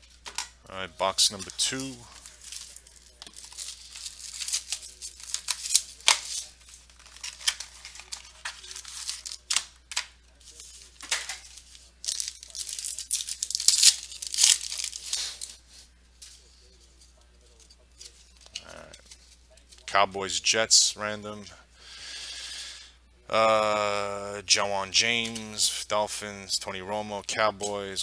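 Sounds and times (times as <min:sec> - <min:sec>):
plastic wrapping tearing and crinkling: 0:01.3 - 0:15.6.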